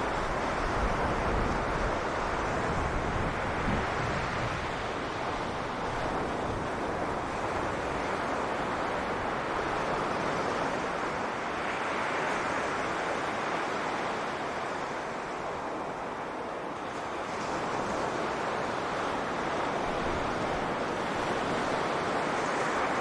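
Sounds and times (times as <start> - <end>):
surf washing on beach: 0.0 - 23.0.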